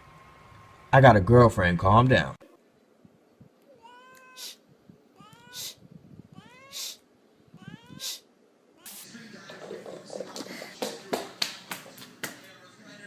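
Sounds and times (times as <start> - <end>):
cat meowing: 3.7 - 4.6, 5.2 - 8.2.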